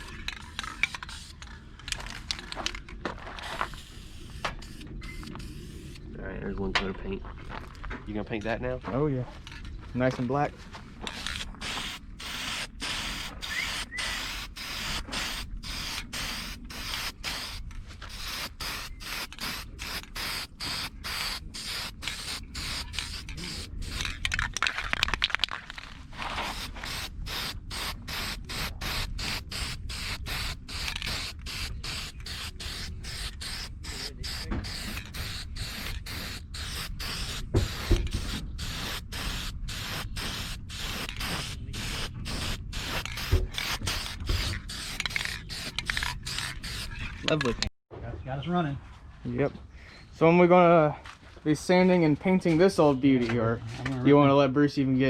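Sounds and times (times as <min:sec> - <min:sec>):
spray paint can hissing: 0:00.0 - 0:02.2, 0:03.4 - 0:06.0, 0:11.1 - 0:24.6, 0:26.4 - 0:47.0.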